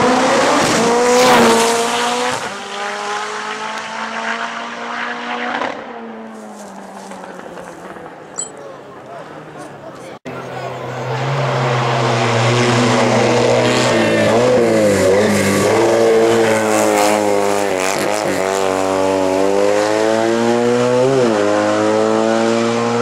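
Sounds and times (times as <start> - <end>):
race car engine accelerating: 0.0 - 6.4, 10.6 - 23.0.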